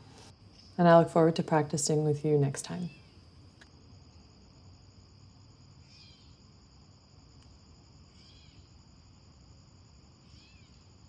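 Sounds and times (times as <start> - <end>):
high insect trill: 3.6 - 11.0.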